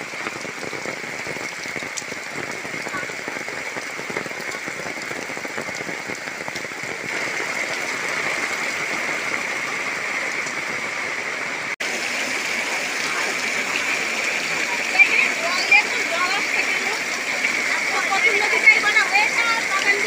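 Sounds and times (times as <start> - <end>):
heavy rain falling: 0.0 - 20.0.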